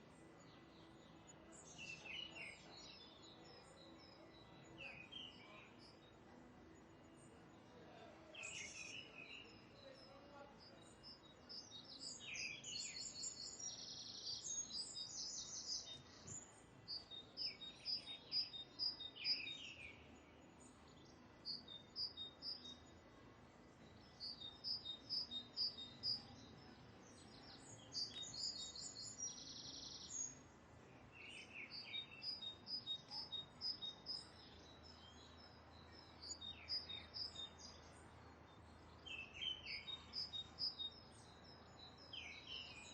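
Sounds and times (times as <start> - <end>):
faint background noise: 0.0 - 42.9
birds chirping: 23.8 - 42.9.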